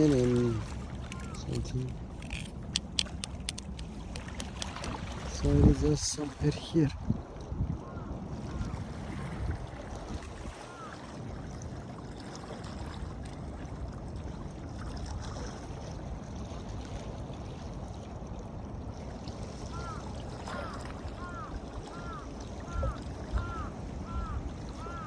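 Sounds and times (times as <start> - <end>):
wind on microphone: 0.0 - 11.6, 20.5 - 25.0
water washing at shore: 0.0 - 25.0.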